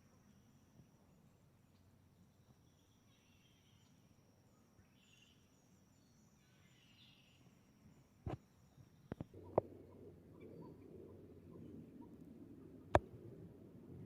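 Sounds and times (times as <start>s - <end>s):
faint bird calls: 9.1s - 13.2s.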